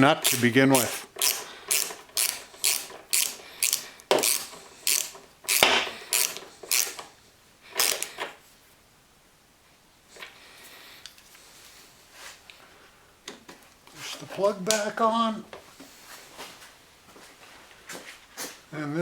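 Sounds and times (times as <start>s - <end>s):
ratchet wrench clicking: 0.2s - 7.1s, 7.7s - 8.3s.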